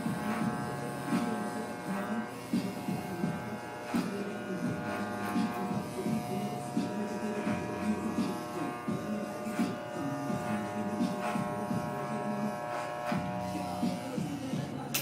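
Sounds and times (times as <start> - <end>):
electric hair clippers buzzing: 0.0 - 15.0.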